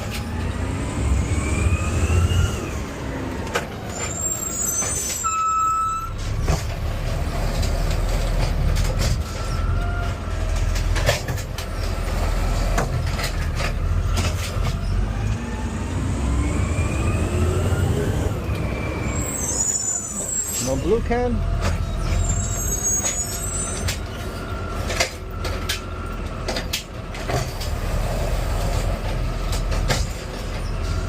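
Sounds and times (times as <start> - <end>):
clicks and squeaks: 3.4 - 6.8, 7.4 - 15.4, 18.3 - 27.8, 28.5 - 31.0
rising whine: 14.8 - 19.7.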